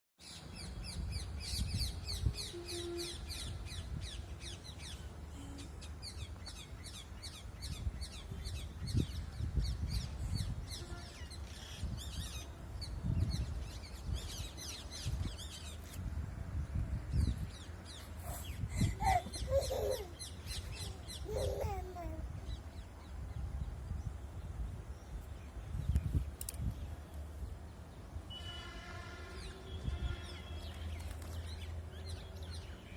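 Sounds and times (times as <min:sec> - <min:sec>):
birds chirping: 0:17.2 - 0:23.0.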